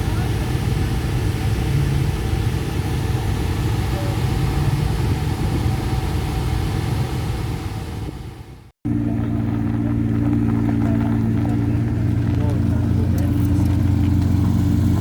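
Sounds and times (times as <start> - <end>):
car engine running: 0.0 - 15.0
faint voices: 8.9 - 14.2.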